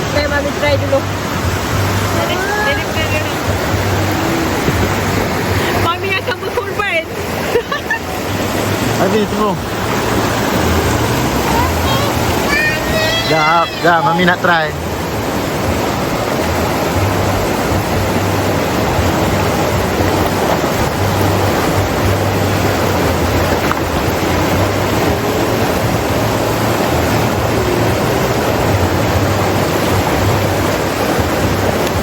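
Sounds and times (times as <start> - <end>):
river water rushing: 0.0 - 32.0.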